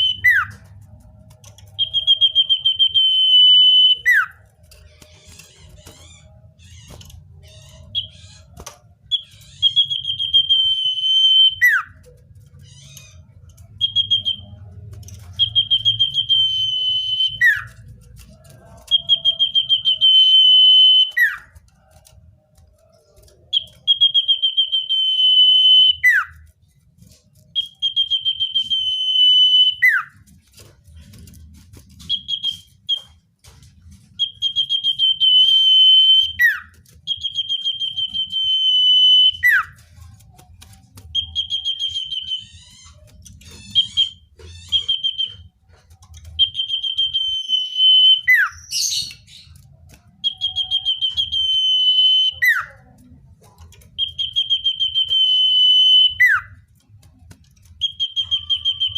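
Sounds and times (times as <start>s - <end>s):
bird singing trilled whistle: 0.0s - 0.6s, 1.7s - 4.4s, 9.1s - 11.9s, 13.8s - 14.6s, 15.3s - 17.7s, 23.5s - 26.4s, 27.5s - 30.1s, 32.0s - 33.1s, 34.2s - 39.7s, 41.1s - 45.5s, 46.4s - 49.6s, 50.2s - 52.7s, 54.0s - 56.6s, 57.8s - 58.9s.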